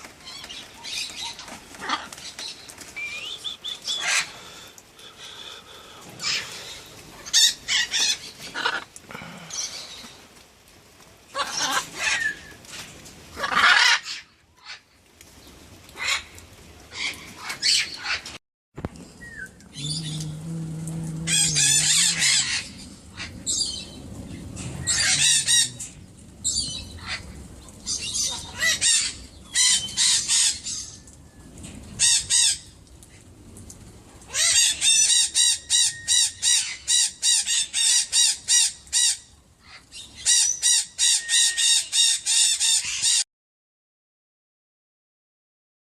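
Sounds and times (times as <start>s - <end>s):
parrots squawking: 1.8s - 2.2s, 7.2s - 8.9s, 11.3s - 12.4s, 13.4s - 14.8s, 21.2s - 23.8s, 24.7s - 26.0s.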